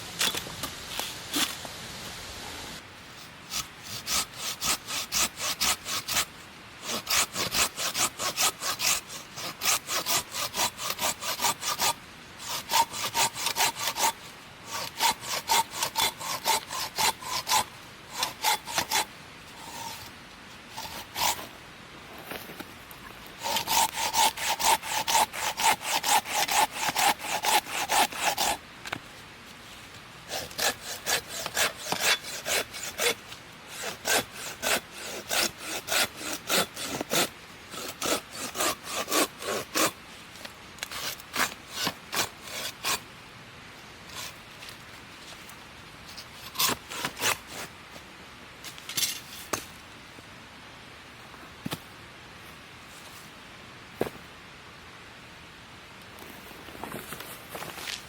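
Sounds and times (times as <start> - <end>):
hand saw cutting wood: 3.5 - 20.1, 20.7 - 21.5, 23.4 - 28.6, 30.3 - 40.0, 40.8 - 43.0, 46.4 - 47.7.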